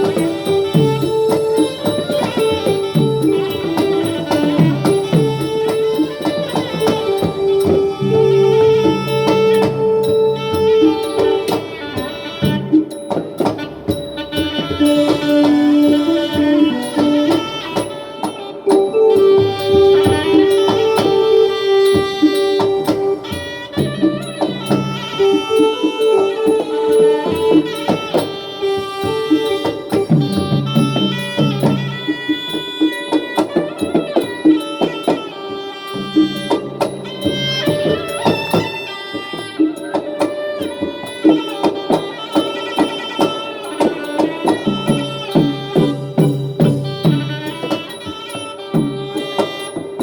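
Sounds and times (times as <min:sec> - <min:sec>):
sustained melody line: 0:00.0 - 0:13.1, 0:14.2 - 0:32.3
rapid drum percussion: 0:00.0 - 0:50.0
small cymbals: 0:00.0 - 0:50.0.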